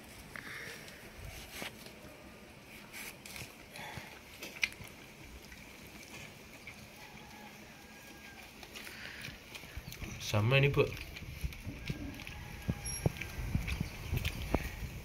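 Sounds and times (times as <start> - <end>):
faint chewing: 0.1 - 15.0.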